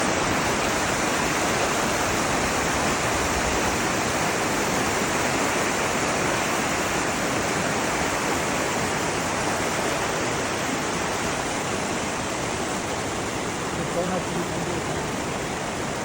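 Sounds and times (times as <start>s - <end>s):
flowing water rushing: 0.0s - 16.0s.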